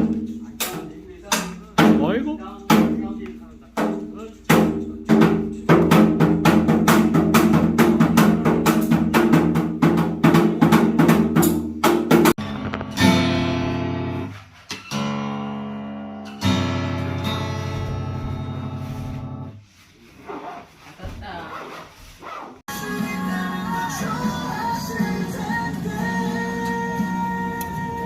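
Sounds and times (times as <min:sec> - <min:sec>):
acoustic guitar strumming: 0:03.8 - 0:19.5, 0:22.7 - 0:28.0.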